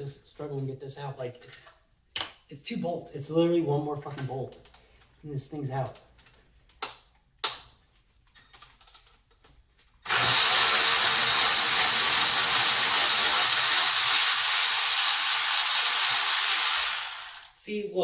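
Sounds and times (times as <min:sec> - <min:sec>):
cordless power tool spinning: 0:10.0 - 0:17.6.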